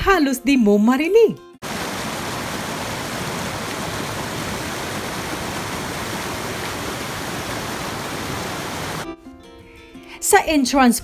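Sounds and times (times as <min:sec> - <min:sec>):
stream of water rushing: 0:01.6 - 0:09.0.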